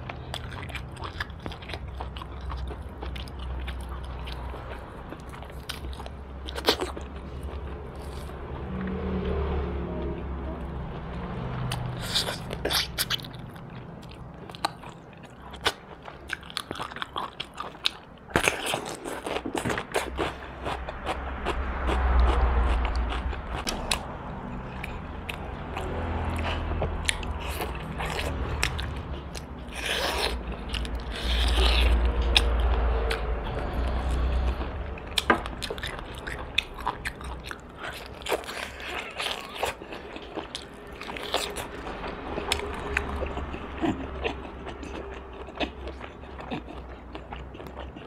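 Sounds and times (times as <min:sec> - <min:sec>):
chewing and crunching: 0:00.0 - 0:09.4, 0:10.0 - 0:48.0
low rumble: 0:20.2 - 0:37.6.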